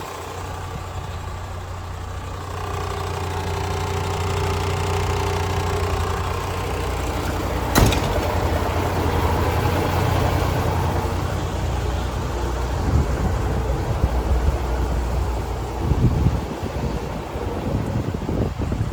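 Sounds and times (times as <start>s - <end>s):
diesel truck engine running: 0.0s - 18.9s.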